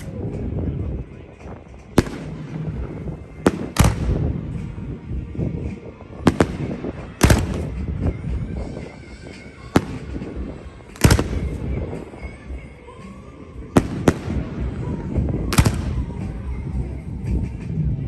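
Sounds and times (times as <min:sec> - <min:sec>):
fireworks crackling: 0:00.0 - 0:17.6
fireworks bangs: 0:01.3 - 0:12.6, 0:13.6 - 0:16.5.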